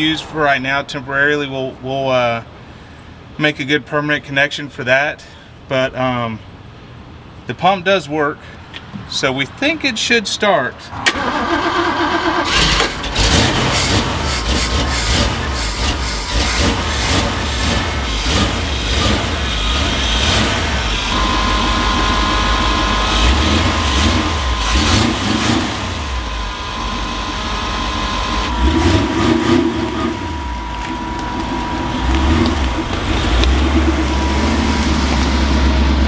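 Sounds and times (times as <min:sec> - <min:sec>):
engine cranking and revving: 0:11.0 - 0:36.0
steady high whine: 0:13.0 - 0:36.0.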